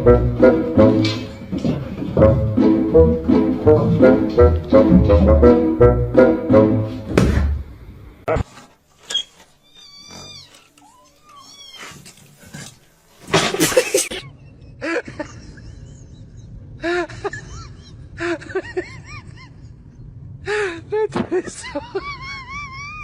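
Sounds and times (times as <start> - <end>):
cats meowing: 9.7 - 12.2.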